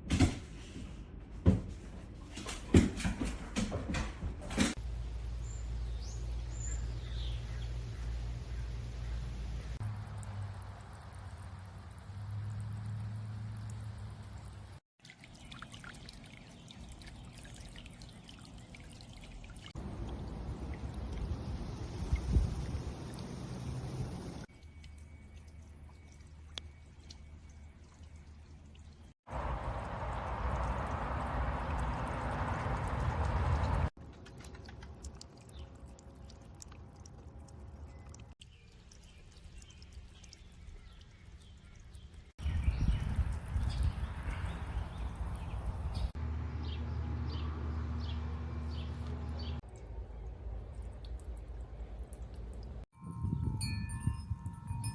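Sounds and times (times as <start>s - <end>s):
fountain water splashing: 4.8s - 24.5s, 29.3s - 35.6s.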